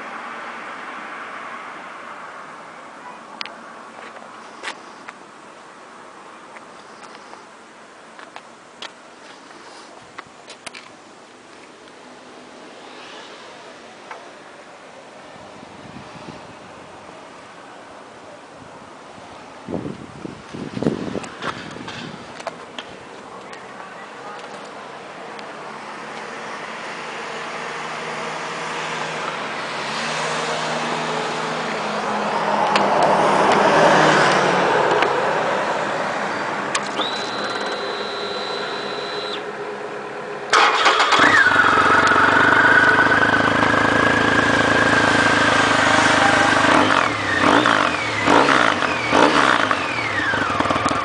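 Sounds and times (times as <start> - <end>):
engine throttle blips: 36.7 - 39.7, 40.5 - 51.0
motorcycle engine running: 40.6 - 51.0.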